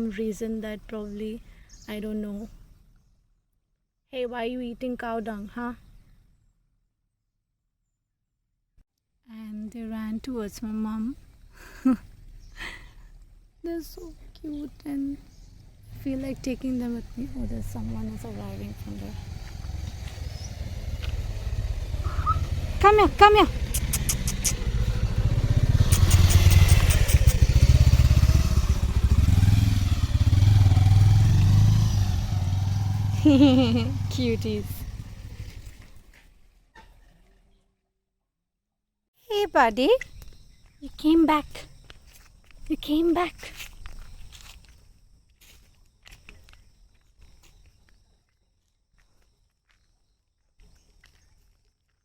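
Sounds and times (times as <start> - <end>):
motorcycle engine running: 15.2 - 36.4
footsteps scuffing on dry ground: 43.3 - 48.0.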